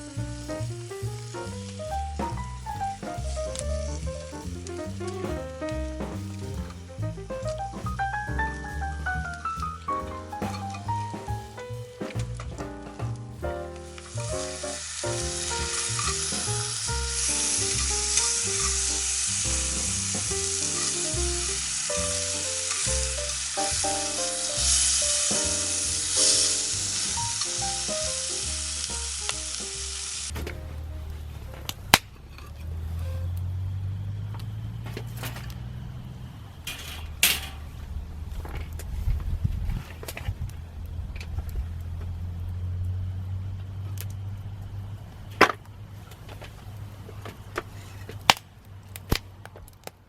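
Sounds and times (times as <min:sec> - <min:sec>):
low rumble: 0:00.0 - 0:32.4
background music: 0:01.2 - 0:31.5
food sizzling in a pan: 0:14.0 - 0:23.8, 0:24.4 - 0:30.3.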